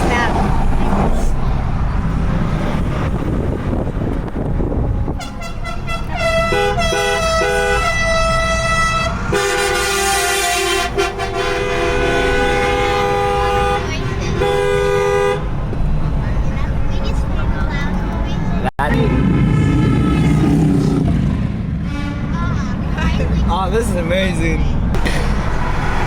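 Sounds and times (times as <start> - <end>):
road and engine rumble: 0.0 - 26.0
truck horn blasts: 4.9 - 15.5, 19.4 - 21.0, 21.8 - 22.6.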